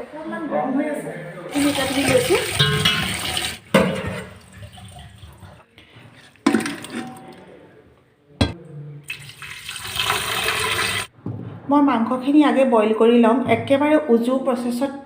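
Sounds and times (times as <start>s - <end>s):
tap water running into sink: 1.5s - 5.5s, 9.1s - 11.1s.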